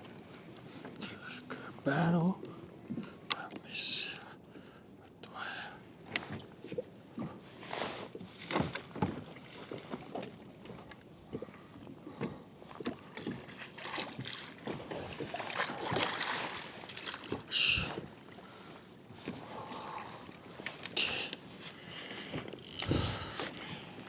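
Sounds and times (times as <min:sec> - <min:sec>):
water lapping: 0:06.6 - 0:24.0
knocks and scrapes against kayak hull: 0:07.6 - 0:10.3.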